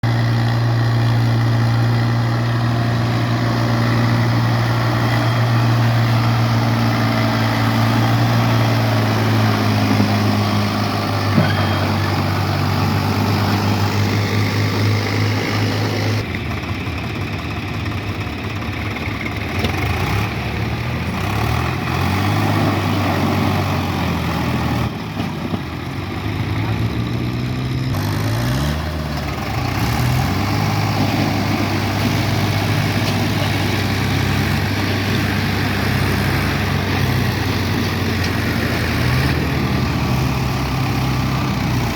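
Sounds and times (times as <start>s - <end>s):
rougher engine note: 0.0s - 16.7s
diesel tractor engine running: 0.0s - 41.9s.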